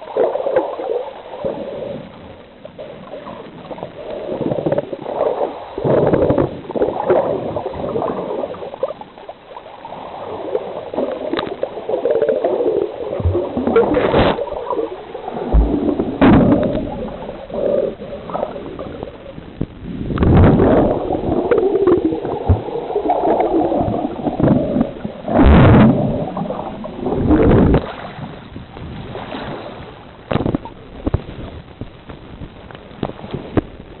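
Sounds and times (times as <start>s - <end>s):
sea water sloshing and gurgling: 0.0s - 34.0s
water splashes: 0.0s - 34.0s.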